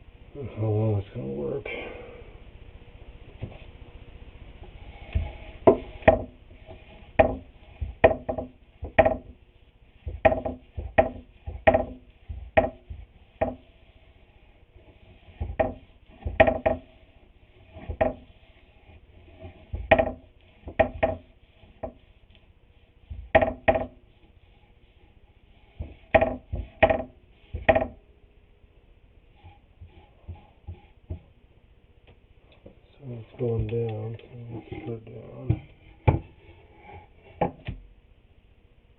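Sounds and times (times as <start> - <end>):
knocks on wooden boards: 5.2 - 9.4, 10.0 - 13.6, 15.4 - 16.9, 17.8 - 18.3, 19.7 - 22.0, 23.1 - 24.0, 25.8 - 28.0, 35.5 - 36.4, 37.4 - 37.8.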